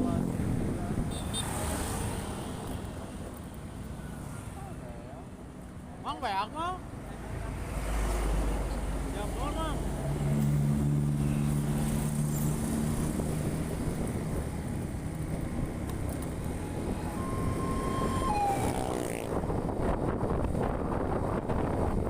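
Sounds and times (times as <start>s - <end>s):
steady tone sliding down: 16.2s - 19.3s.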